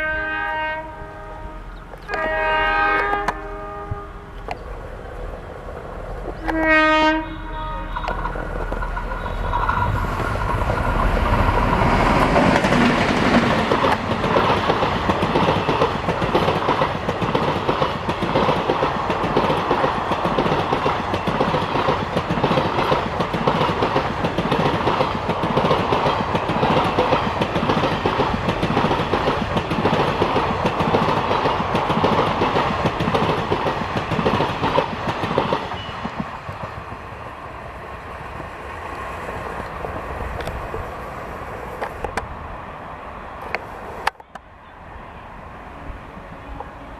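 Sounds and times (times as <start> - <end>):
locomotive horn blast: 0.0 - 4.3, 6.4 - 10.1
train wheels clacking on rails: 7.9 - 37.1.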